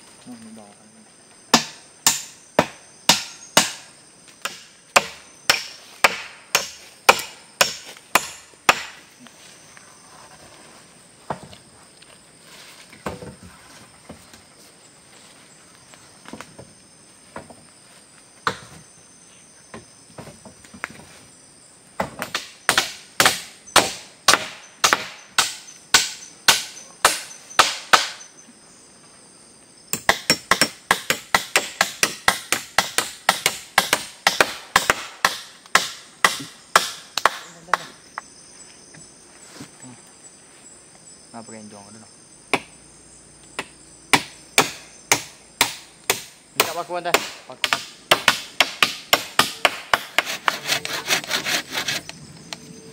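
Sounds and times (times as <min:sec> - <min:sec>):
blows on wood: 0:50.0 - 0:52.1.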